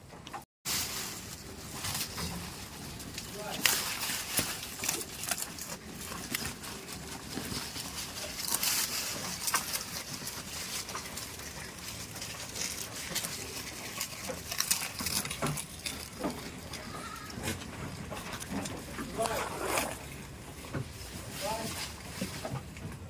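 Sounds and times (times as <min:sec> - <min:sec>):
goats rustling: 0:00.7 - 0:23.0.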